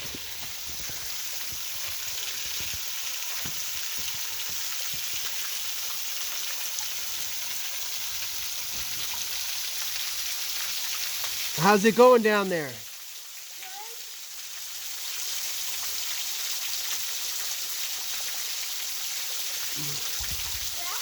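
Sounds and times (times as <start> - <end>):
waterfall splashing: 11.5 - 12.8.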